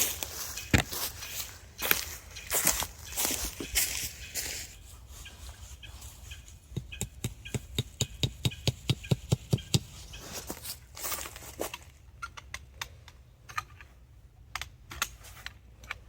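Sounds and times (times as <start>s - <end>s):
rustling: 0.0s - 6.8s, 9.7s - 12.0s
hammer knocking tent stake: 6.7s - 9.9s.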